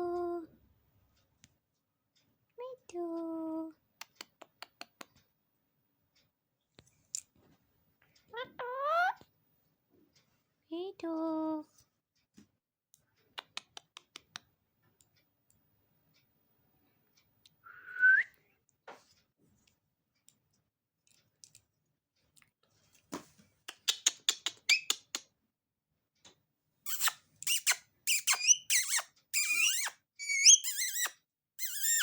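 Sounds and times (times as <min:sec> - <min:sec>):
parrot squawks and chatter: 0:08.3 - 0:09.3, 0:23.7 - 0:25.2, 0:26.8 - 0:32.0
parrot rising whistle: 0:17.6 - 0:18.3, 0:28.3 - 0:31.1.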